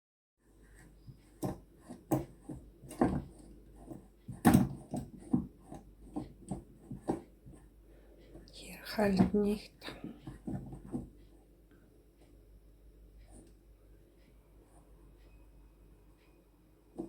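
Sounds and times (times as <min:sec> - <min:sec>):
objects knocking and clunking: 0:00.8 - 0:07.7, 0:09.1 - 0:11.2.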